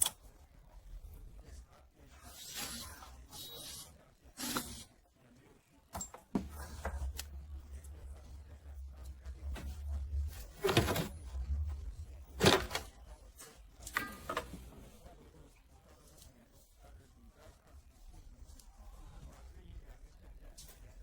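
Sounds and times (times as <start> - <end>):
low hum: 6.5 - 15.1.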